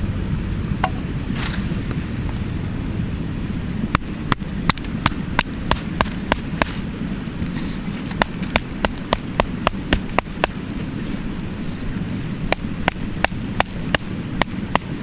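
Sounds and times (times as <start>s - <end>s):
mountain stream rushing: 3.4s - 15.0s.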